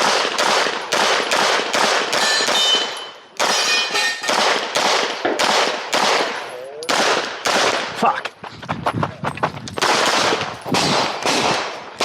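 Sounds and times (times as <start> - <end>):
pistol shots: 0.0 - 8.0, 9.8 - 12.0
steel targets ringing: 2.2 - 4.3.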